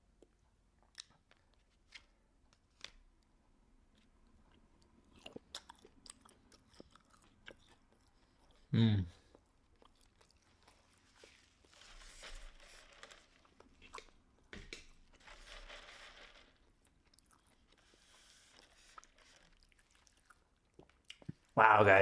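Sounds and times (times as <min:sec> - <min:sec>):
chewing food: 0:00.1 - 0:01.6, 0:04.0 - 0:11.8, 0:13.0 - 0:15.0, 0:16.8 - 0:21.4.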